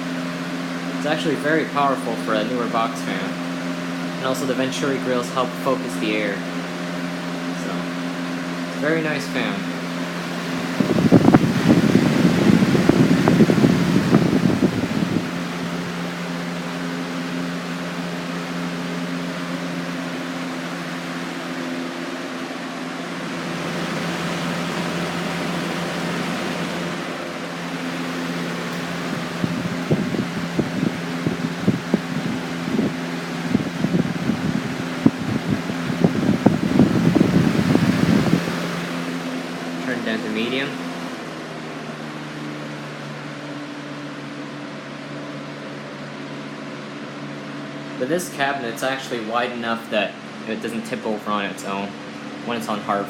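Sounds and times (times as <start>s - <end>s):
box fan running: 0.0s - 53.0s
wind buffeting microphone: 10.3s - 16.0s, 28.9s - 38.8s.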